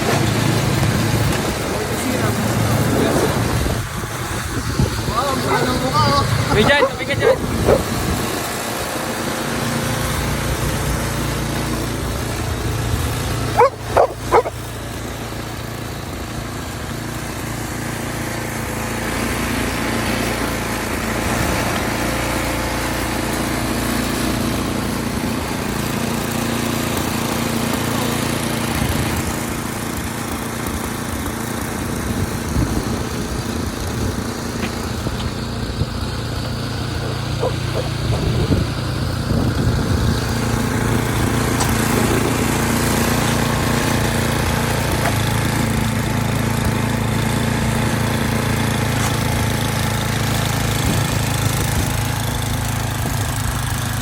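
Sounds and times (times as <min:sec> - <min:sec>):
engine running: 0:00.0 - 0:54.0
dog barking: 0:05.4 - 0:08.0, 0:13.5 - 0:14.7, 0:36.9 - 0:38.7.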